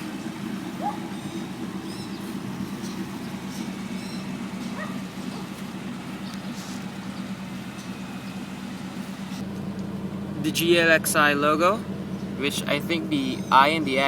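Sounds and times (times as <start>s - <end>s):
car engine idling: 0.0s - 14.0s
faint squeaky chirps: 0.8s - 8.5s, 13.2s - 13.8s.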